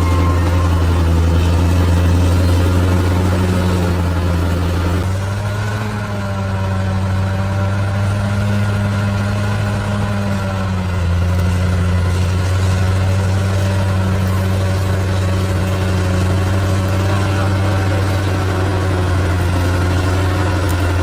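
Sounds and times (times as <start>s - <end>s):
bulldozer diesel engine humming: 0.0s - 21.0s.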